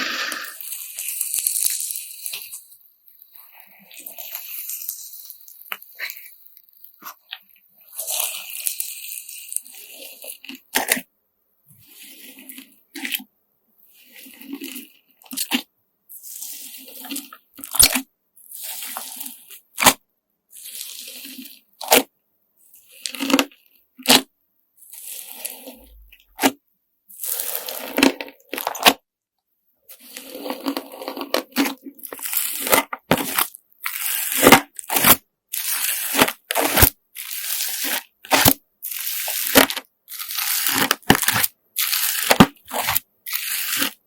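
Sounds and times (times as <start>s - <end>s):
slime squishing and crackling: 0.6s - 11.0s, 14.1s - 22.1s, 27.2s - 29.0s, 29.9s - 44.0s.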